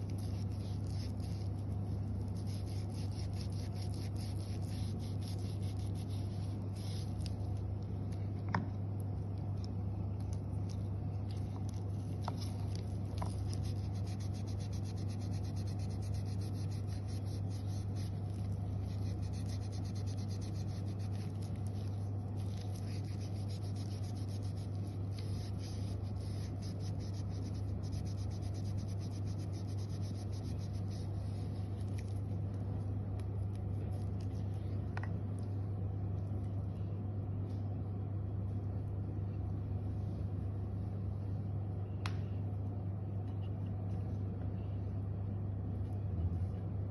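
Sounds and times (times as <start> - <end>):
tissue paper rubbing metal: 0.0 - 7.3, 12.5 - 32.0
low hum: 0.0 - 46.9.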